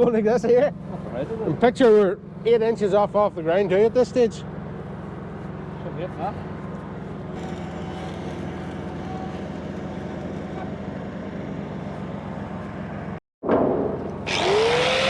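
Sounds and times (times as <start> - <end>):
welding generator engine running: 6.8 - 12.3, 14.3 - 15.0
angle grinder whine: 14.3 - 15.0.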